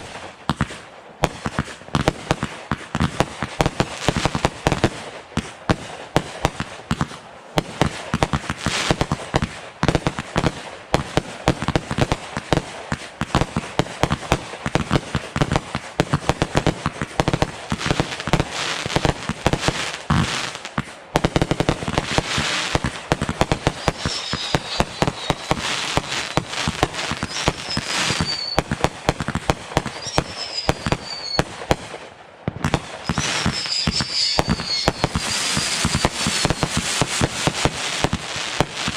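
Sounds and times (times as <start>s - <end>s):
fireworks popping and banging: 0.0s - 38.9s
high falling whistles: 23.6s - 28.7s, 29.9s - 31.5s, 33.0s - 37.5s.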